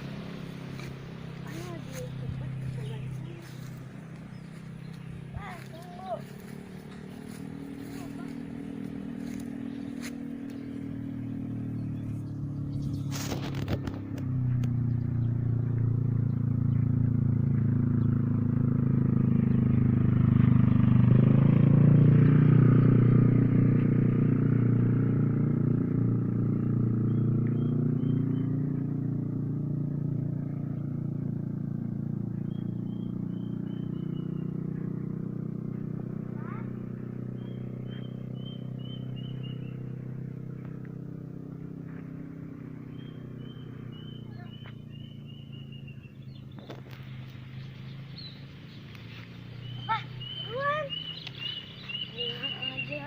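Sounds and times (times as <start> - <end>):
bird chirping: 0.0 - 18.3, 26.4 - 29.1, 32.0 - 53.0
vehicle engine driving past: 0.0 - 53.0.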